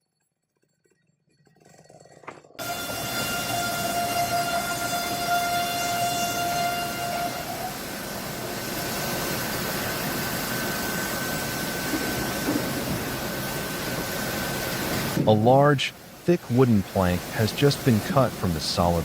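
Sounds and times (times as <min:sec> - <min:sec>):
saw whining through log: 0:02.6 - 0:14.9
higher fainter saw whine: 0:02.6 - 0:19.0.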